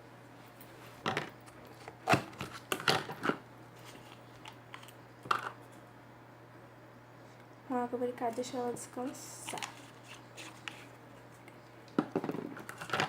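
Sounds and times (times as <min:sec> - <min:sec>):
steady low hum: 0:00.0 - 0:13.0
slime pots clicking and rustling: 0:01.0 - 0:05.6, 0:09.0 - 0:13.0.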